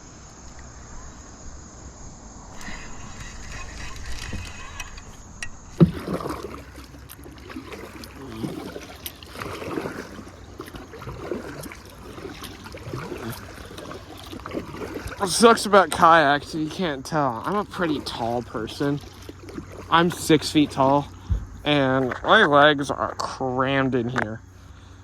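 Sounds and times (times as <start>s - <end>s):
insects chirping: 0.0s - 25.0s
water sloshing around kayak: 0.0s - 25.0s.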